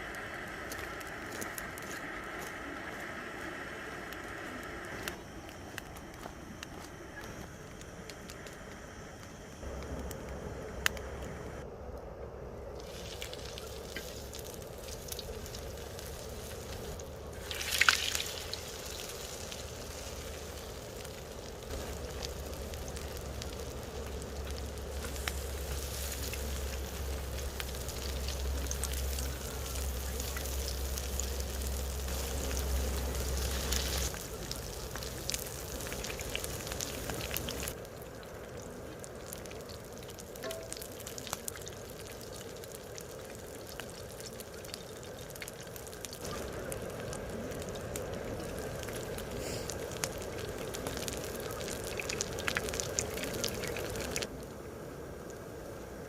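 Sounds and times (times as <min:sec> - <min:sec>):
low steady rumble: 0:00.0 - 0:56.0
food sizzling in hot oil: 0:12.8 - 0:54.3.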